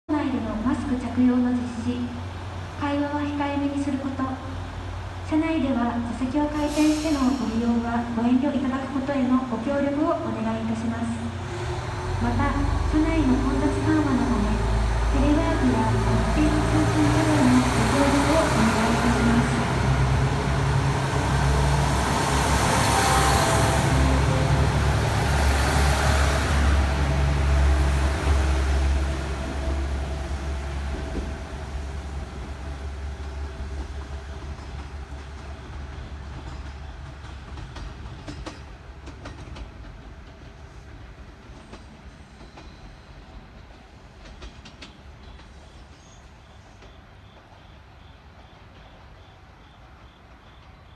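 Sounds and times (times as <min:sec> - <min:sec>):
train rumbling: 0:00.2 - 0:50.9
wheels clicking over rail joints: 0:33.8 - 0:46.1.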